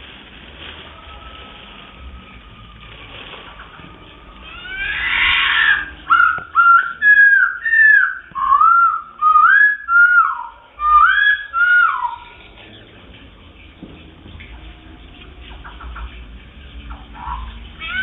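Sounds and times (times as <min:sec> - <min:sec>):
songbird singing whistled notes: 0:03.4 - 0:12.9.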